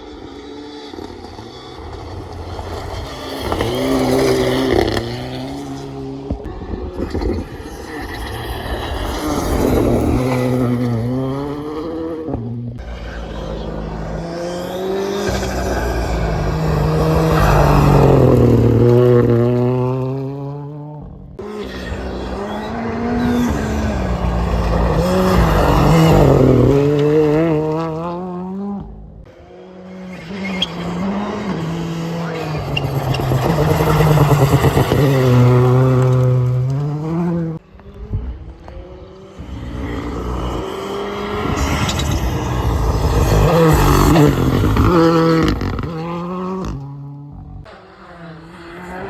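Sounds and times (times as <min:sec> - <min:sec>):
rally car engines revving: 0:00.0 - 0:49.0
tyre noise: 0:21.4 - 0:29.0, 0:30.2 - 0:47.8.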